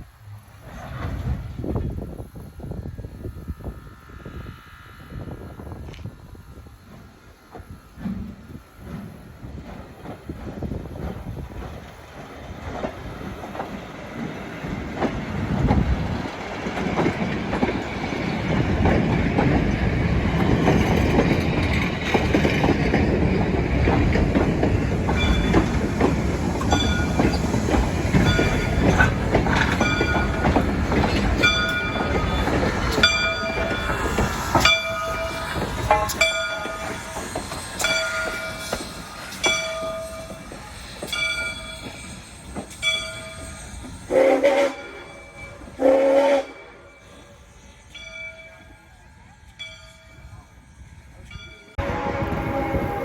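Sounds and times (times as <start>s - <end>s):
train rumbling past: 0.0s - 53.0s
wheels clacking over rail joints: 6.8s - 45.8s.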